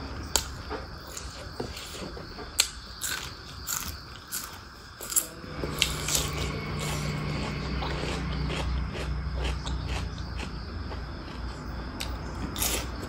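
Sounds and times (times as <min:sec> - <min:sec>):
chewing clicks: 0:07.3 - 0:11.4.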